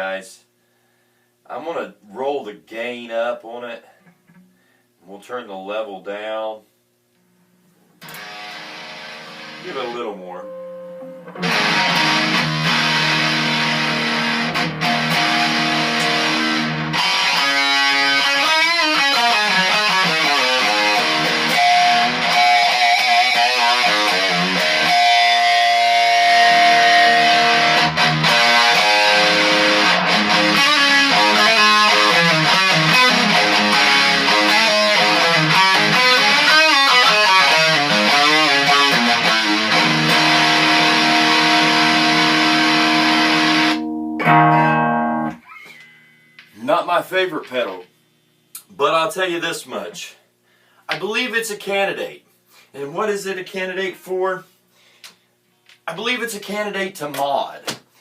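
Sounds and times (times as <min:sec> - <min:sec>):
distorted electric guitar: 0:08.0 - 0:46.7.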